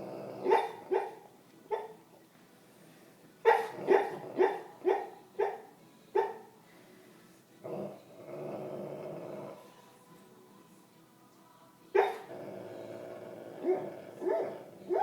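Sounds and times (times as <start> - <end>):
dog growling: 0.0 - 0.9, 3.6 - 4.7, 7.6 - 9.8, 12.0 - 15.0
dog barking: 0.4 - 2.0, 3.5 - 6.5, 12.0 - 12.3, 13.7 - 15.0.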